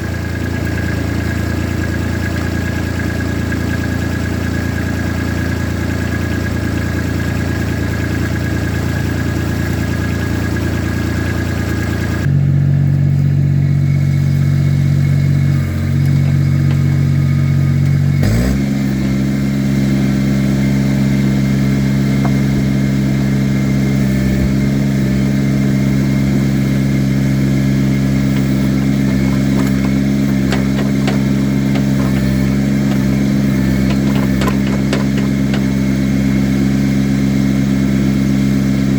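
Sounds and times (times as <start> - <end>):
machine engine running: 13.6 - 38.0.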